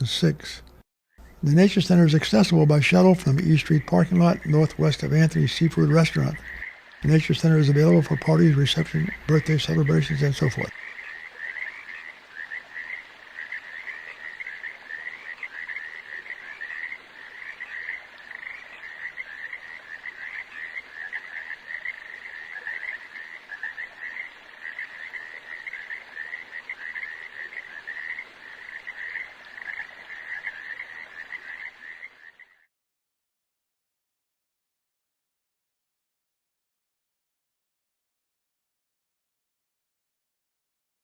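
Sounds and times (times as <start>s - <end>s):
frogs croaking: 0.0s - 32.7s.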